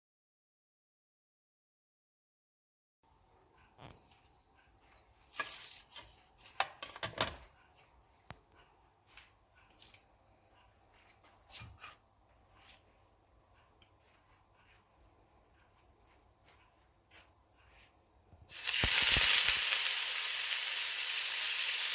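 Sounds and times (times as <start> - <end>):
kitchen items rustling and knocking: 5.2 - 7.6.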